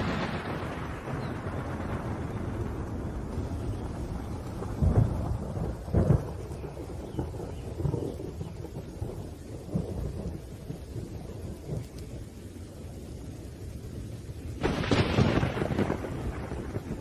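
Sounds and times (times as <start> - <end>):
loud thunderclap crashing: 0.0 - 8.8, 14.6 - 17.0
low thunder rumbling: 0.0 - 17.0
rain: 0.0 - 17.0.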